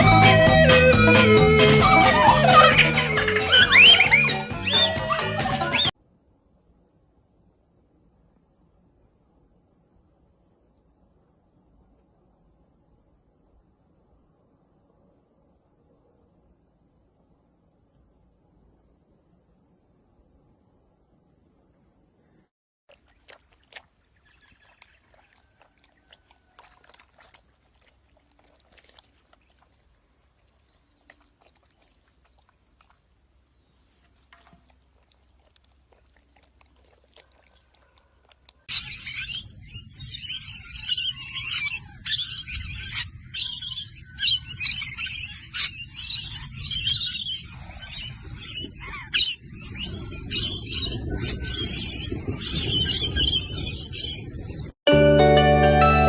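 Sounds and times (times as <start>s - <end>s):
many birds chirping: 0.0s - 5.9s, 38.7s - 54.7s.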